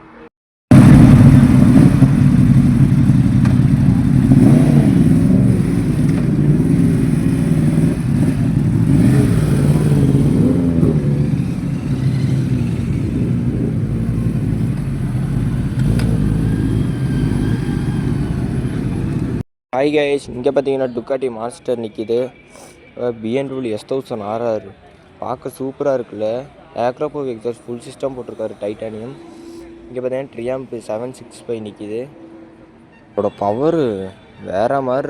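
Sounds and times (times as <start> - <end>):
superbike engine running: 0.7 - 19.4.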